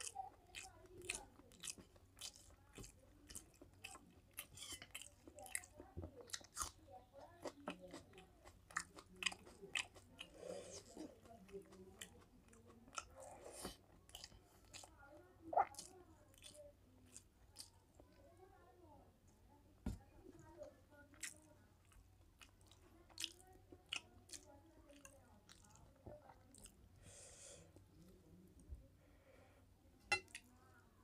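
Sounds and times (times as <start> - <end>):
chewing and lip-smacking: 0.0 - 18.1, 21.1 - 26.9.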